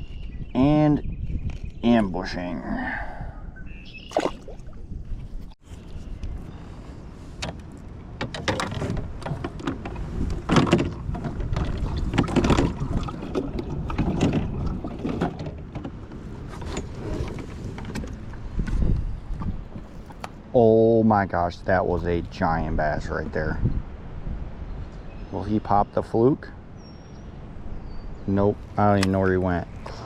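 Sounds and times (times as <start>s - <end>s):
wind rumble on microphone: 0.0s - 26.0s
water lapping against kayak hull: 8.5s - 20.4s.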